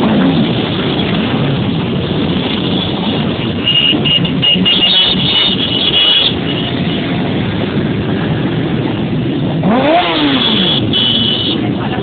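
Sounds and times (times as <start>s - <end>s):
motorcycle engines running: 0.0s - 12.0s
motorcycle engine revving: 7.0s - 11.6s.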